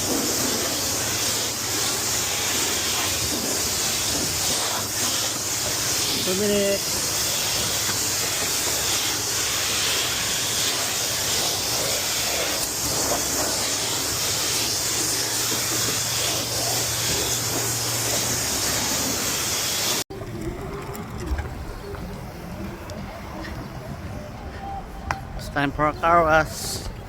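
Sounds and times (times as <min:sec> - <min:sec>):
high-pressure water spray hissing: 0:00.0 - 0:20.0.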